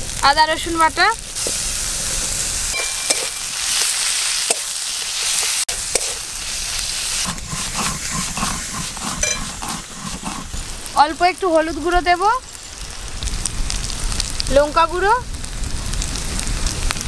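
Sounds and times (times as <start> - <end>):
onions sizzling in hot oil: 0.0 - 17.0
metal spatula clicking and scraping: 2.7 - 6.2, 7.2 - 10.5
stone pestle grinding spices: 2.8 - 6.5, 7.2 - 10.7.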